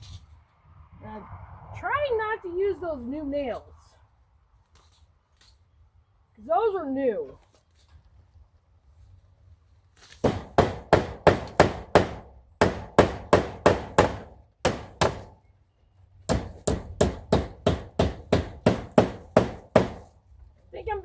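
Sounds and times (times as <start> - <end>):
hammer striking nails into wood: 10.2 - 15.4, 16.3 - 20.2.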